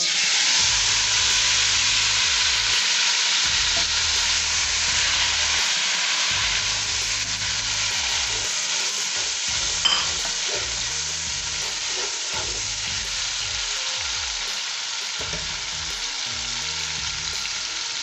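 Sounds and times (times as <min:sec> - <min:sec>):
tomatoes sizzling in hot oil: 0:00.0 - 0:18.0.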